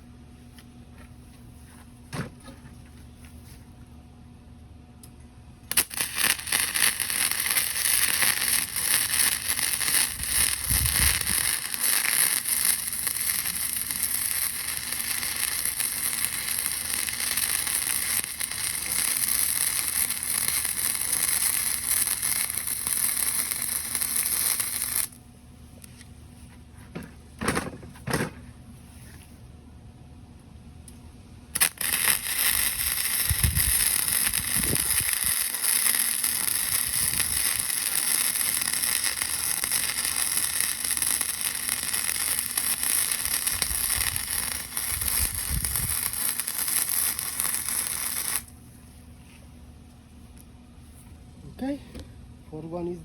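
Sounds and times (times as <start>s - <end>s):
welder arc crackling: 5.7s - 25.2s, 31.5s - 48.6s.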